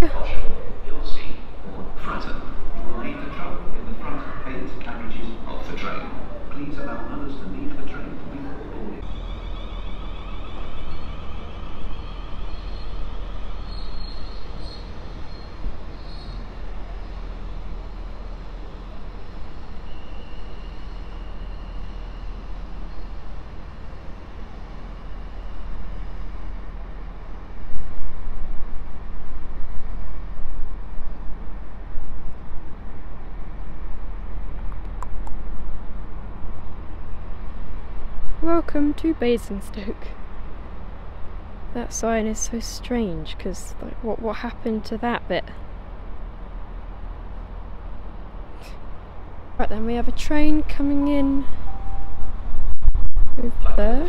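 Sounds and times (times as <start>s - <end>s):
train rumble: 0.0s - 54.0s.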